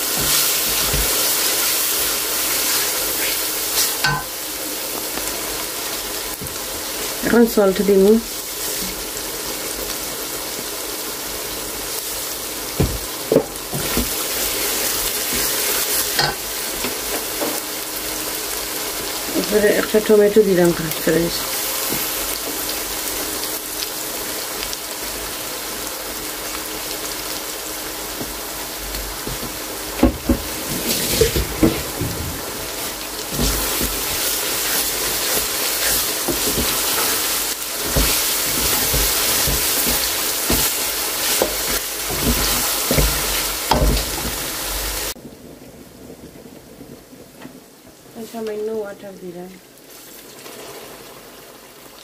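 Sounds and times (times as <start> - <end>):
vegetables sizzling in oil: 0.0 - 45.2, 47.6 - 52.0
wooden spatula scraping a pan: 30.4 - 45.0.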